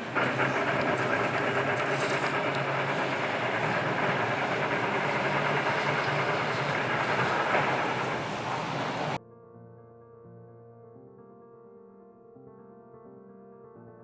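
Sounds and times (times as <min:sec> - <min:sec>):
electric tram running on track: 0:00.0 - 0:09.2.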